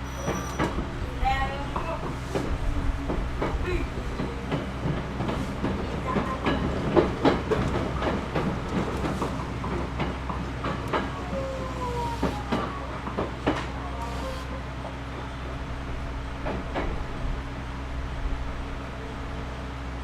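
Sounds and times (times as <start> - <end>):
faint squealing tones: 0.0 - 0.8
wheels clicking over rail joints: 0.0 - 17.3
train interior rumble: 0.0 - 20.0.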